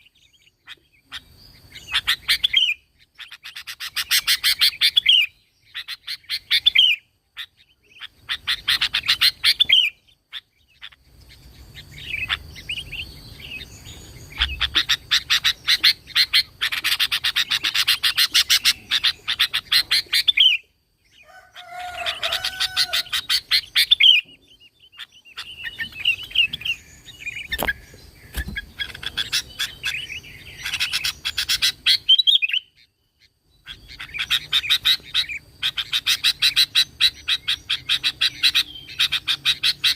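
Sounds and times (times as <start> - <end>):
bird singing chattering phrases: 0.0 - 39.9.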